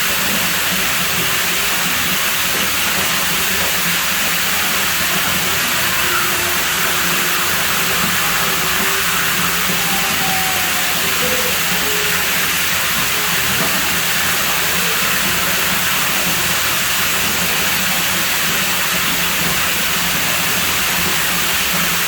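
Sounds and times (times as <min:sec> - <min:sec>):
water running: 0:00.0 - 0:22.0.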